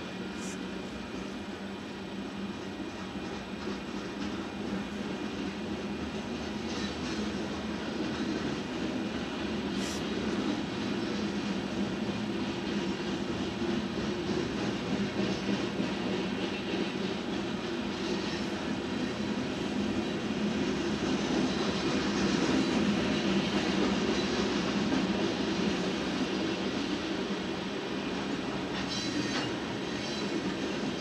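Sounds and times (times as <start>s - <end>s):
steel wheels rolling on rail: 0.0s - 31.0s.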